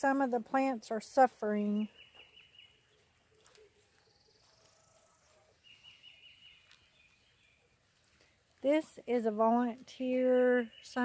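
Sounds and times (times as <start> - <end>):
faint bird chirping: 1.6 - 8.4, 9.9 - 11.0.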